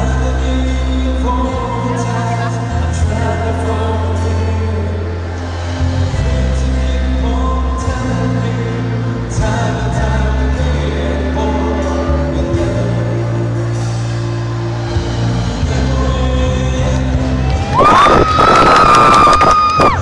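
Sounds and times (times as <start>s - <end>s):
person singing: 0.0s - 18.6s
live band playing: 0.0s - 20.0s.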